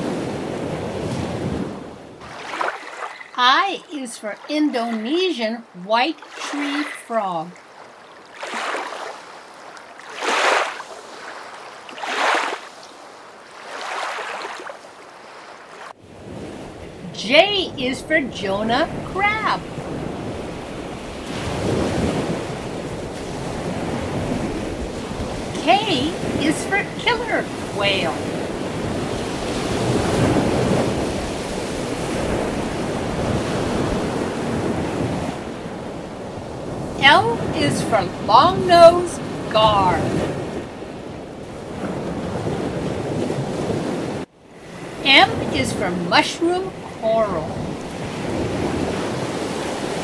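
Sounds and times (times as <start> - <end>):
rushing water waves: 0.0 - 50.0
whales splashing water: 0.9 - 3.4, 6.1 - 16.5
wind on microphone: 16.1 - 44.3.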